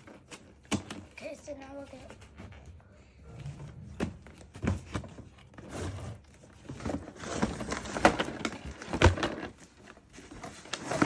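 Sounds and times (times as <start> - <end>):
cardboard and plastic packaging scraping: 3.5 - 11.0.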